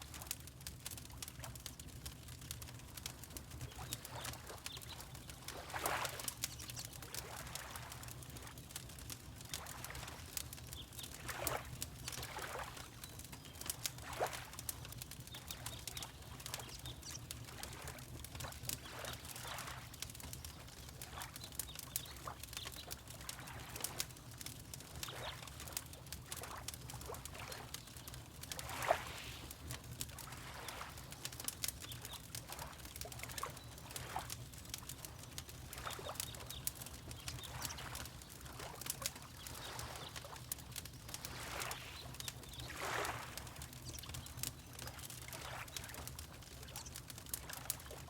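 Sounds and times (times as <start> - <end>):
fireplace crackling: 0.0 - 48.0
water lapping: 3.0 - 21.3, 22.0 - 48.0.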